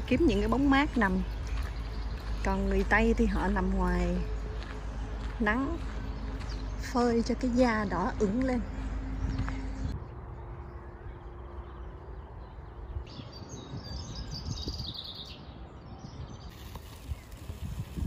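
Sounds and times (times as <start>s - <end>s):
low outdoor rumble: 0.0s - 13.1s
songbirds chirping and singing: 0.0s - 18.0s.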